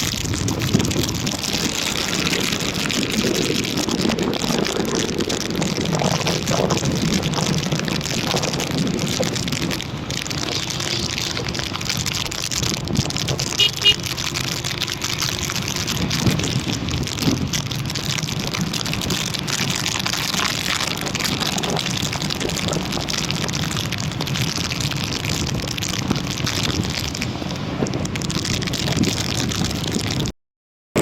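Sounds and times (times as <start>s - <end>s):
rain rushing noise: 0.0s - 30.3s
raindrops ticking on a surface: 0.0s - 30.3s.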